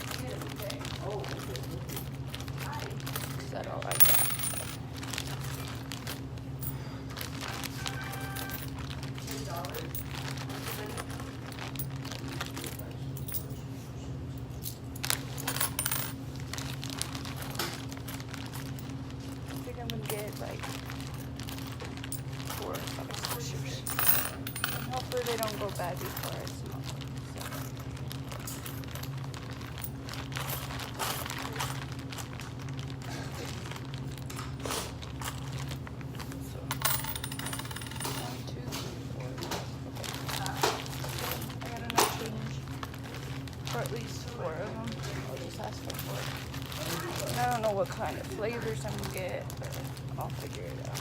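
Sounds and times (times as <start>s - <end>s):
steady low hum: 0.0s - 51.0s
coins clinking: 3.1s - 6.7s, 7.4s - 13.6s, 15.1s - 16.2s, 20.0s - 26.5s, 36.7s - 38.4s
coins clinking in a hand: 3.9s - 4.8s, 7.6s - 8.8s, 15.4s - 16.2s, 23.8s - 25.0s, 36.7s - 38.3s.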